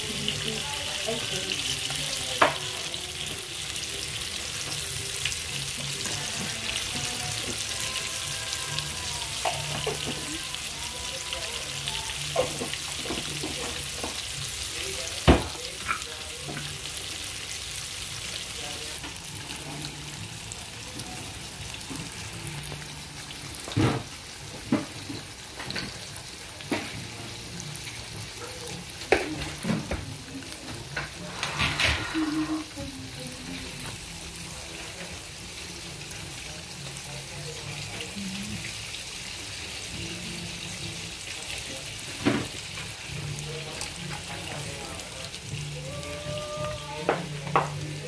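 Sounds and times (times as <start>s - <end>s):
chicken sizzling in hot oil: 0.0s - 48.0s.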